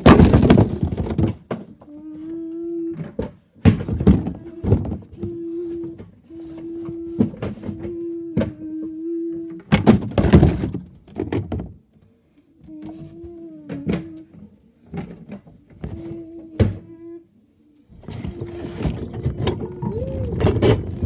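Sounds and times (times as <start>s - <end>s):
bin contents clattering: 0.0s - 1.7s, 9.8s - 11.8s, 18.0s - 21.0s
knocks and clunks: 0.0s - 1.7s, 18.0s - 21.0s.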